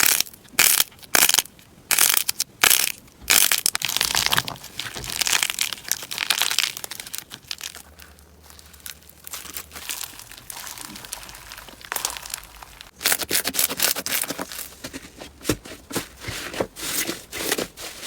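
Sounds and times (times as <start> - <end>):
slime crunching and crackling: 0.0 - 14.7.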